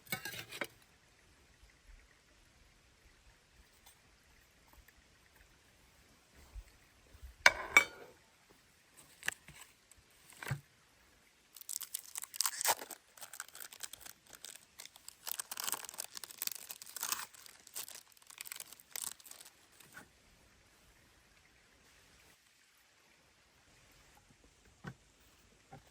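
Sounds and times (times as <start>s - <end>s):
crinkly material rustling and tearing: 11.5s - 20.0s.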